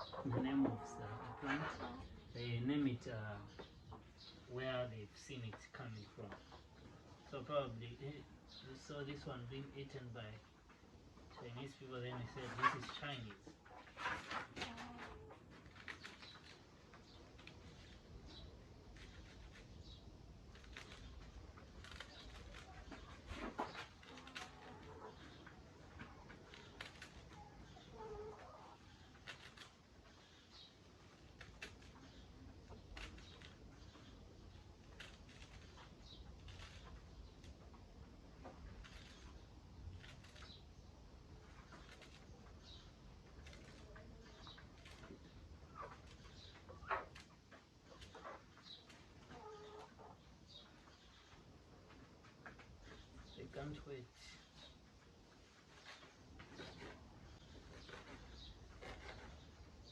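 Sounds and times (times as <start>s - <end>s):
chickens clucking: 0.0s - 4.7s, 8.9s - 39.7s, 41.3s - 54.0s
knife cutting leafy greens: 20.5s - 24.8s, 26.4s - 27.4s, 29.2s - 29.8s, 57.6s - 59.9s.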